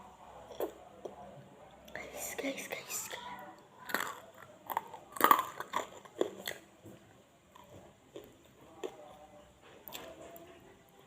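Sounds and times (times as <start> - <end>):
crunching and chewing fried chicken: 0.4 - 1.2, 3.6 - 11.0.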